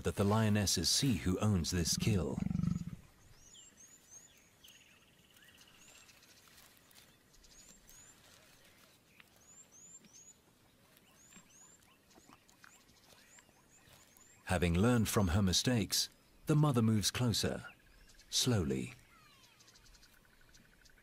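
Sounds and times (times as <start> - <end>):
small birds chirping: 0.0 - 21.0
bird trill: 17.6 - 21.0.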